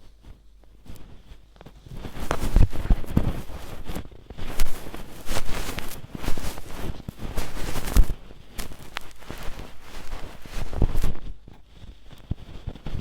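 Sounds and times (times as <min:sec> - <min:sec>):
ear pick scraping: 0:00.9 - 0:12.6.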